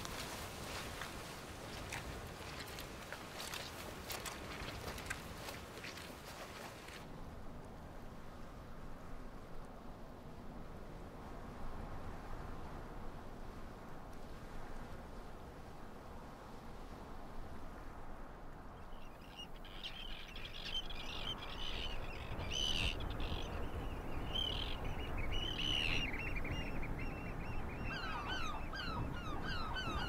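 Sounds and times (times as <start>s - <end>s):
birds chirping: 18.8s - 30.0s.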